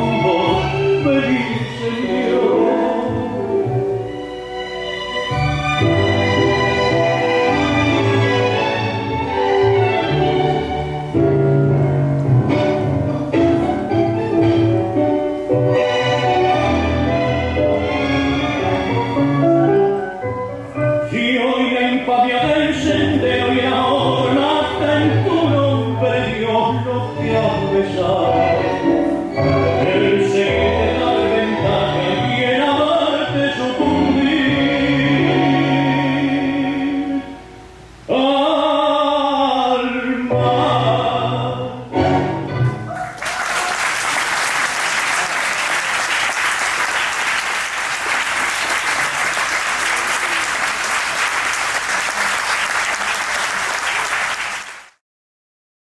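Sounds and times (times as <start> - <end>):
voice singing over orchestra: 0.0 - 4.2, 21.0 - 42.3
audience applause: 42.9 - 55.0.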